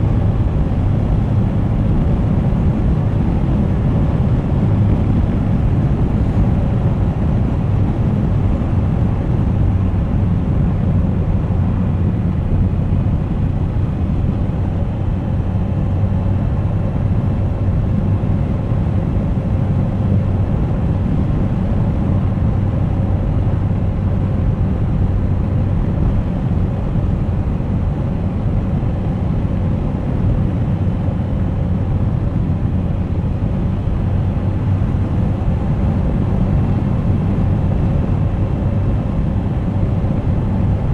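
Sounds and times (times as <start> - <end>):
wind and road noise: 0.0 - 40.9.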